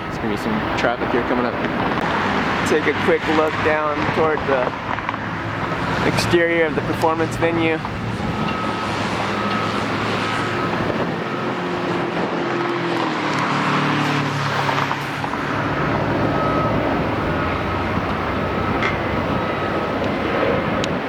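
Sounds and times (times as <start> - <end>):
vehicle engines passing: 0.0 - 21.0.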